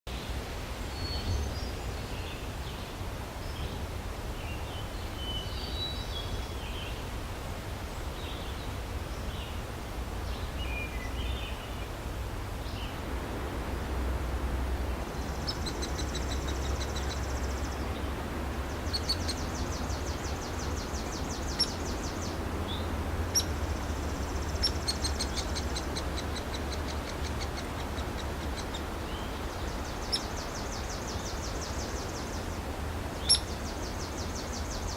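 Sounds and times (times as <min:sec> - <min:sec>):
songbirds singing: 0:00.1 - 0:07.2, 0:07.8 - 0:34.9
wind rumble: 0:08.7 - 0:34.9.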